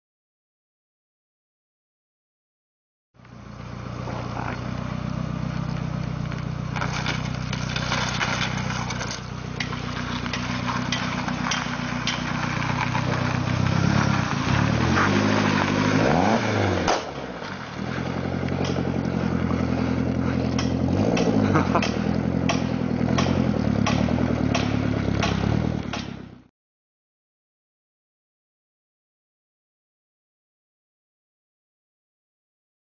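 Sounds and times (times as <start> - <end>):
car engine running at low revs: 3.2 - 26.5
tyres crunching on gravel: 3.7 - 26.4.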